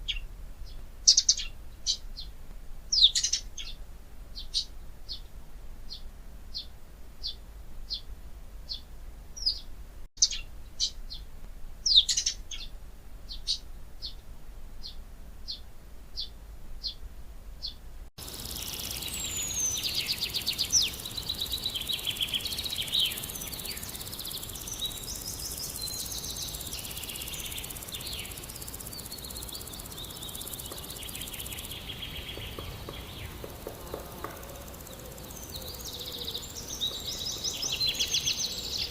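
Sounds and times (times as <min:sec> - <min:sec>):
songbird chirping: 0:00.0 - 0:38.9
chorus of birds trilling: 0:18.2 - 0:38.9.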